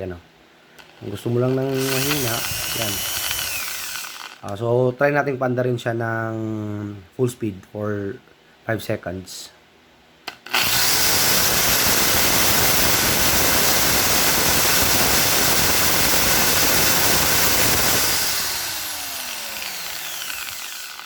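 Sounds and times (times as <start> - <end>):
impact drill motor running: 0.8 - 4.5, 10.3 - 21.0.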